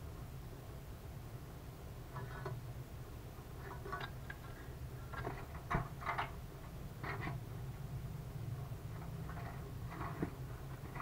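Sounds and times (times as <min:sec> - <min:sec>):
bird scratching and tapping on metal: 0:07.0 - 0:07.4, 0:09.0 - 0:11.0.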